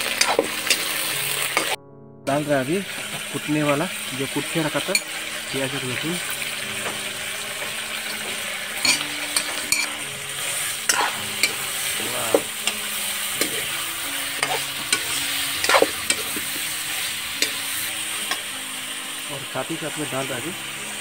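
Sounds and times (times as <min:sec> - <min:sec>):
ladle scraping and knocking pan: 0:00.0 - 0:01.7, 0:06.8 - 0:13.8, 0:14.4 - 0:18.4
food sizzling in oil: 0:00.0 - 0:21.0.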